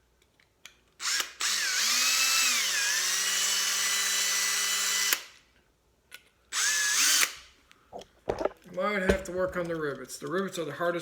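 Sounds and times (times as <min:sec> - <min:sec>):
small electric drill whining: 0:01.0 - 0:05.4, 0:06.5 - 0:07.6.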